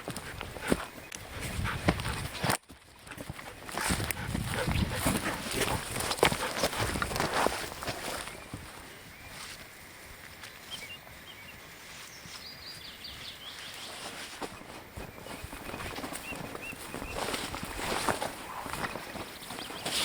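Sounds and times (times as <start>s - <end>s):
bird chirps: 10.6s - 20.0s.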